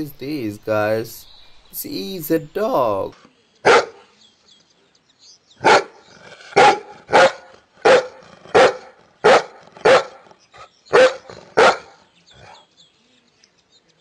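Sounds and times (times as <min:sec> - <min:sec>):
dog barking: 0:03.6 - 0:04.1, 0:05.6 - 0:06.0, 0:06.6 - 0:10.3, 0:10.9 - 0:12.7.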